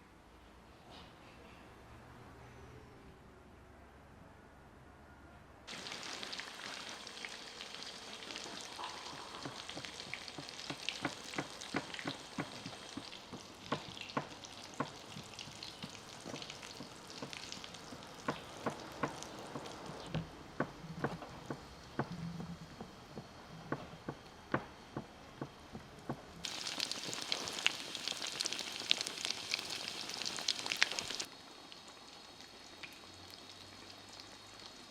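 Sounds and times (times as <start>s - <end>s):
buns sizzling in hot oil: 5.7s - 20.1s, 26.4s - 34.9s.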